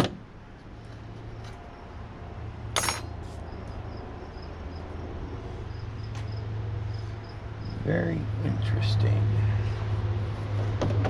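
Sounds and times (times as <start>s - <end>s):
steady low hum: 0.3s - 10.7s
metallic clink: 2.8s - 3.1s.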